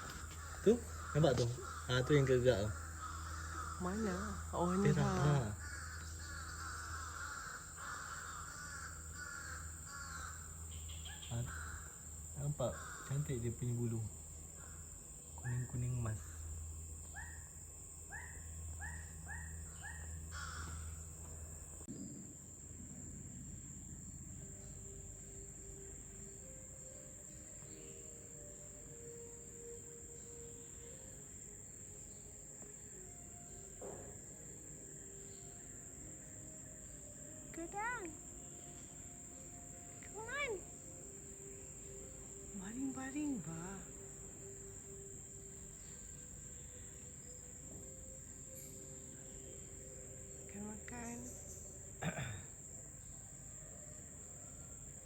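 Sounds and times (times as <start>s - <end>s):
harsh cawing bird calls: 0.0s - 14.0s, 14.6s - 16.5s, 18.1s - 21.1s
high-pitched insect drone: 0.0s - 55.0s.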